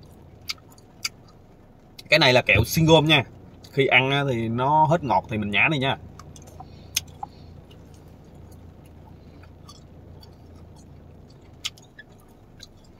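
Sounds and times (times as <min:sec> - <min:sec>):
gum chewing: 0:00.0 - 0:02.1, 0:06.1 - 0:12.9
steady low hum: 0:00.0 - 0:12.9
wet mouth clicks: 0:06.2 - 0:08.6, 0:09.4 - 0:12.9.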